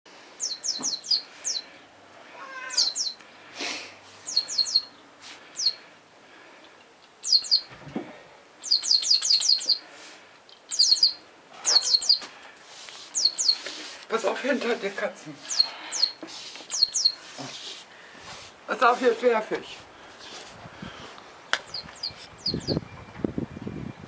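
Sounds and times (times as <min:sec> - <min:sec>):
cat meowing: 0:02.3 - 0:03.1.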